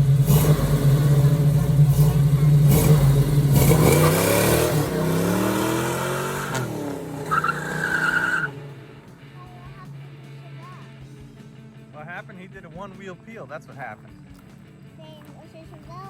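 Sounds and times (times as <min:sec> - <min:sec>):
car engine revving hard: 0:00.0 - 0:09.1
tire squealing: 0:00.0 - 0:09.3.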